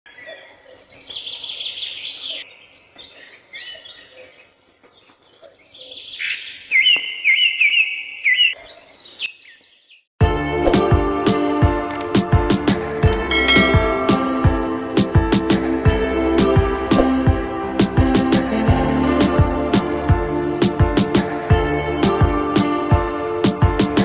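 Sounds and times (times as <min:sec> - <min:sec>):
birds chirping and singing: 0:00.1 - 0:10.1
music: 0:10.2 - 0:24.0.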